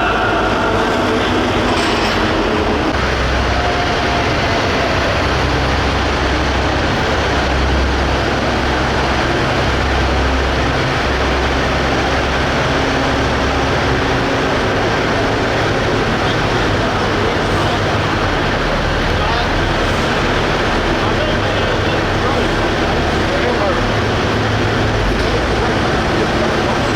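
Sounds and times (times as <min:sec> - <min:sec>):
tractor diesel engine roaring: 0:00.0 - 0:26.9.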